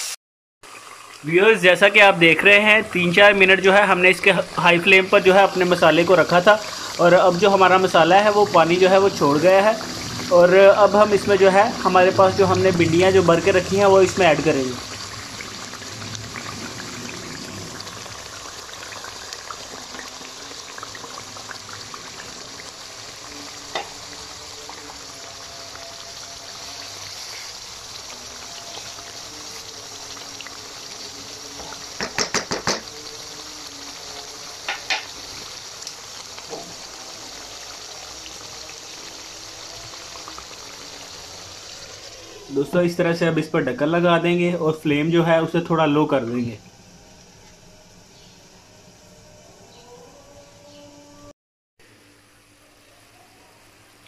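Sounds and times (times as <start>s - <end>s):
paste sizzling and bubbling in oil: 0.0s - 43.0s
spatula knocking on pan: 32.0s - 32.9s.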